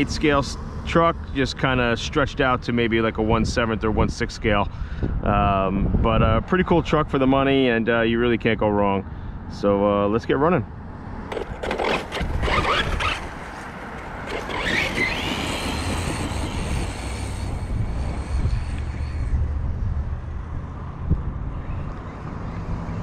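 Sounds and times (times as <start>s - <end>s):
electric motor whine: 11.3s - 20.2s
steady low rumble: 15.4s - 22.0s.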